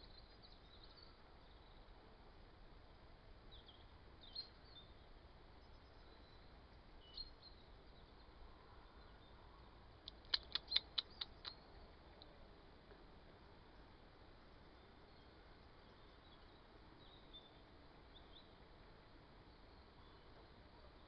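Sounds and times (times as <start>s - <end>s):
bird chirps: 10.1s - 11.9s.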